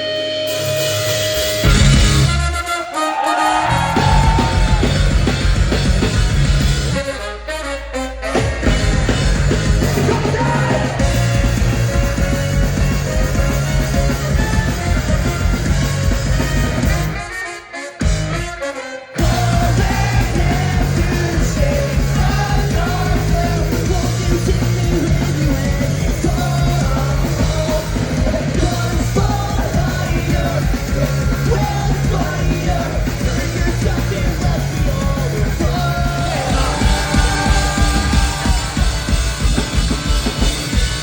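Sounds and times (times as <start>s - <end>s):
guitars: 0.0s - 18.6s, 19.2s - 41.0s
bass: 0.0s - 41.0s
drums: 0.0s - 41.0s
lead vocal singing: 2.9s - 5.4s, 8.2s - 12.3s, 19.2s - 40.4s.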